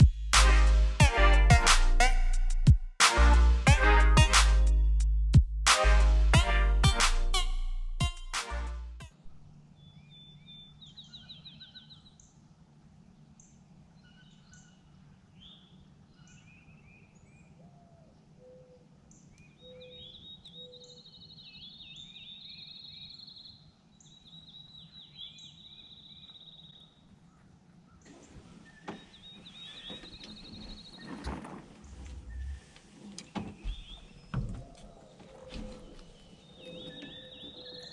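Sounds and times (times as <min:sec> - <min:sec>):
soft low notes: 0:00.0 - 0:09.6
songbirds trilling and chirping: 0:13.2 - 0:37.9.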